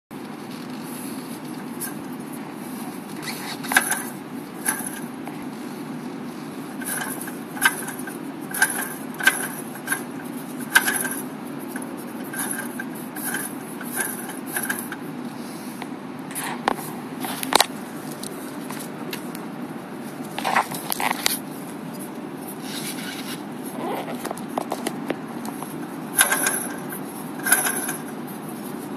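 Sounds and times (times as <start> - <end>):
sharp clicks and light rattles: 6.8 - 15.0.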